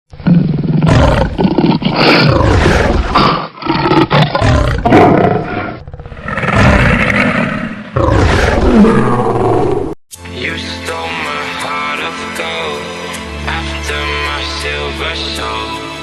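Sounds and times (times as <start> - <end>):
big cats roaring and growling: 0.2 - 10.0.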